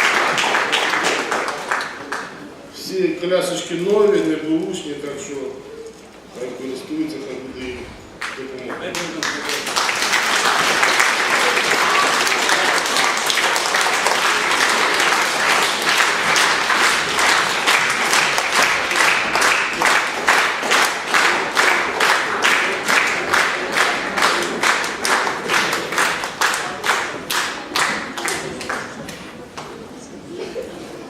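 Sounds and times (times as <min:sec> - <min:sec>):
rhythmic unison clapping: 0:00.0 - 0:02.4, 0:08.2 - 0:29.2
audience applauding: 0:00.0 - 0:02.6, 0:08.2 - 0:29.2.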